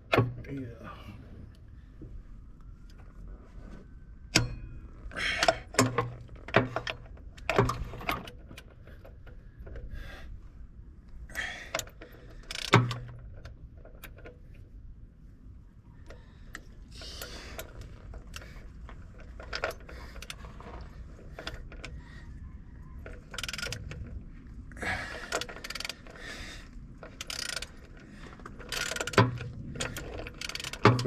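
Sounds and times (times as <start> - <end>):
ratchet wrench clicking: 11.4 - 13.4, 23.3 - 24.0, 25.2 - 26.1, 27.1 - 27.8, 28.6 - 31.0.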